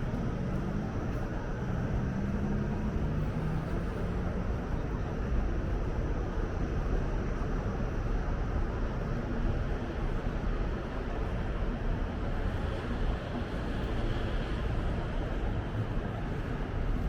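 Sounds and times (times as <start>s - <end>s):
low rumble of city noise: 0.0s - 17.0s.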